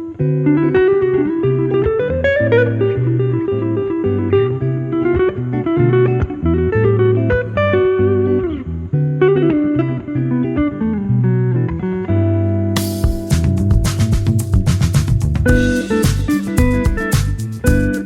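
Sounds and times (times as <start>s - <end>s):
guitar melody with sliding notes: 0.0s - 18.0s
steady bass line: 12.8s - 18.0s.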